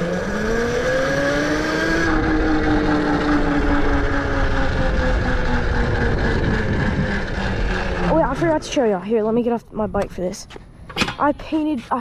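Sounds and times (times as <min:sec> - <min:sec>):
electric dirt bike motor whining: 0:00.0 - 0:08.5
low rumble: 0:02.1 - 0:11.6.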